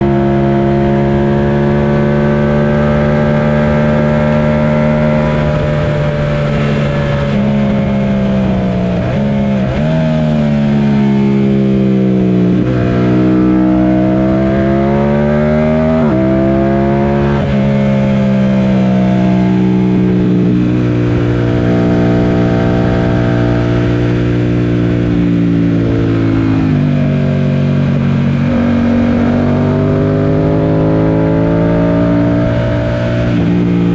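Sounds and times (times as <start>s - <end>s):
motorcycle engine revving through gears: 0.0s - 33.9s
steady wind noise: 0.0s - 33.9s.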